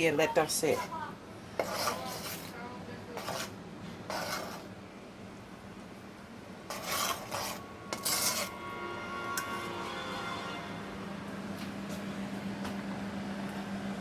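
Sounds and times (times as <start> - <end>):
faint hum with thin whine: 0.0 - 14.0
cookware scraping: 0.4 - 1.0, 1.6 - 4.8, 6.7 - 10.0.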